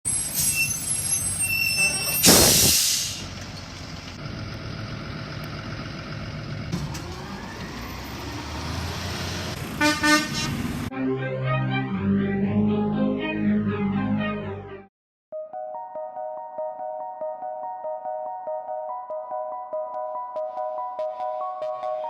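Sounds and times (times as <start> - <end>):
truck horn toots: 1.5 - 2.4, 9.7 - 10.7
air brake hiss: 2.2 - 3.3
garbage truck engine running: 2.2 - 9.8.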